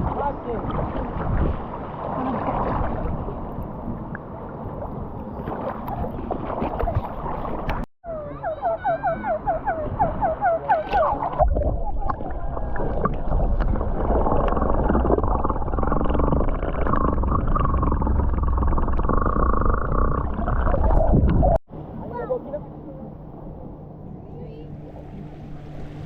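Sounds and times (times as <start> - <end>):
sea water rushing: 0.0 - 7.9, 9.7 - 26.0
wind noise on microphone: 0.0 - 8.3, 9.3 - 21.6.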